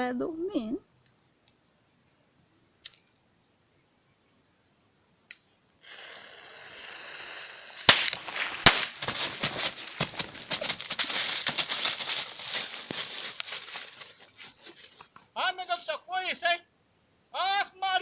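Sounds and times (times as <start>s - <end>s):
firecracker fuse hissing: 5.8s - 14.9s
firecracker bangs: 5.9s - 11.6s
rapid crackling pops: 5.9s - 15.3s.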